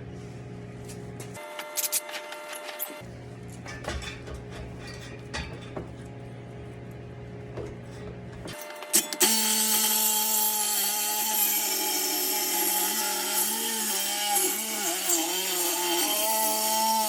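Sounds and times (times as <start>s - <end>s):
reciprocating saw cutting pipe: 8.5s - 17.0s.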